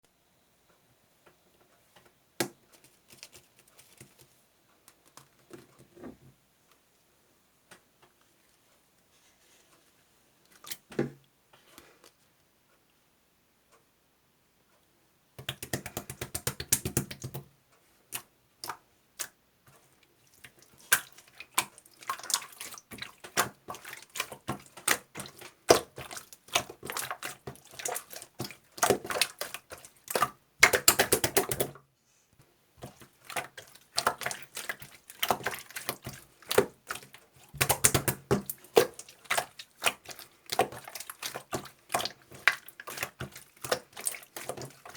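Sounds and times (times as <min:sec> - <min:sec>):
rapid small clicks and taps: 0:15.4 - 0:17.5.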